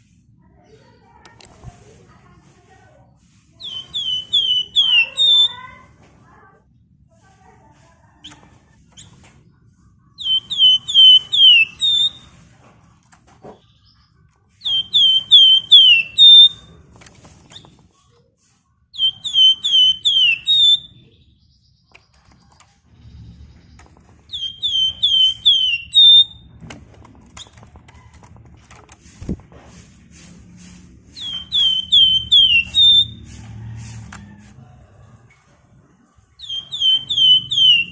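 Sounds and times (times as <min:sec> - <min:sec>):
songbird whistling phrase: 0:03.6 - 0:05.6, 0:10.2 - 0:12.3, 0:14.7 - 0:16.7, 0:19.0 - 0:21.0, 0:24.3 - 0:26.4, 0:31.2 - 0:33.2, 0:36.4 - 0:37.9.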